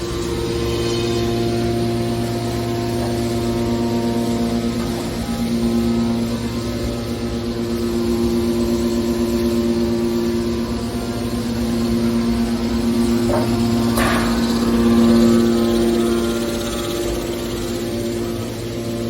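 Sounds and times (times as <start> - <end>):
baler machine humming: 0.0 - 19.0.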